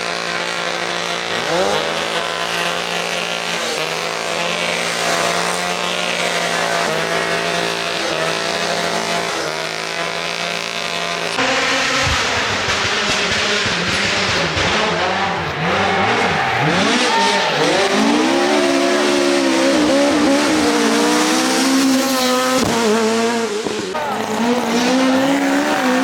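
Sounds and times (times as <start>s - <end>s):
rally car engine revving through gears: 0.0s - 26.0s.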